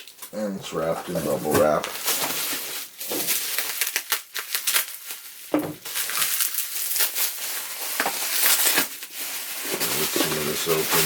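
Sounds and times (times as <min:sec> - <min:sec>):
bubble wrap crinkling: 0:00.0 - 0:00.3, 0:01.1 - 0:11.0
dull knock: 0:05.6 - 0:05.8.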